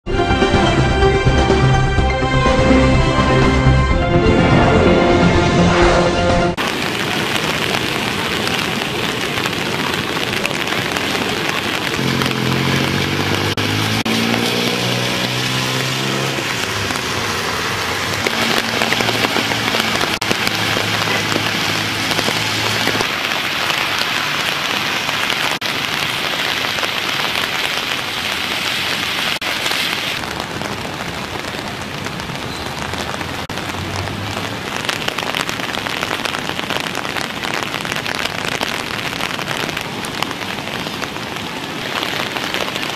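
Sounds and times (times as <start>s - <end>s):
low hum stepping in pitch: 0.1s - 6.6s
heavy rain falling: 0.1s - 42.9s.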